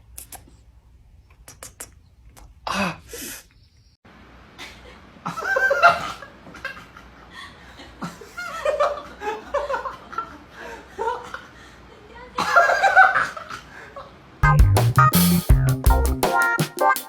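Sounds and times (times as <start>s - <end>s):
people laughing: 4.6s - 14.1s.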